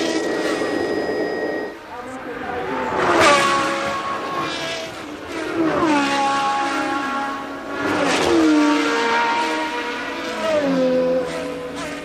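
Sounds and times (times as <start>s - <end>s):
racing cars passing: 0.0s - 12.0s.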